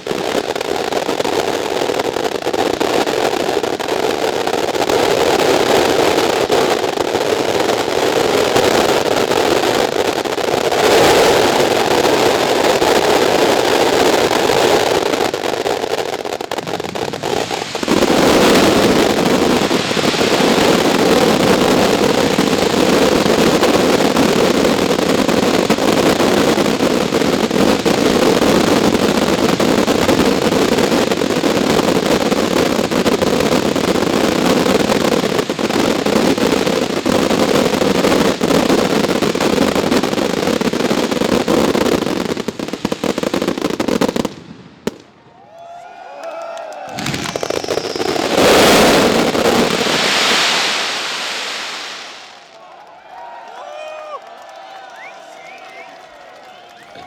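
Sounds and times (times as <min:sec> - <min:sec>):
fireworks barrage: 0:00.0 - 0:45.5, 0:46.8 - 0:57.0.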